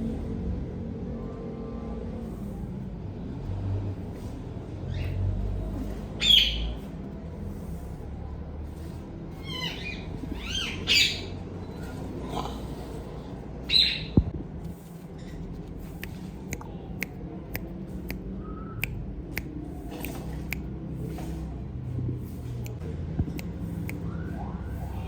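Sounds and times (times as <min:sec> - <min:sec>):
parrots calling: 0:06.2 - 0:06.8, 0:09.4 - 0:13.0, 0:13.6 - 0:14.2.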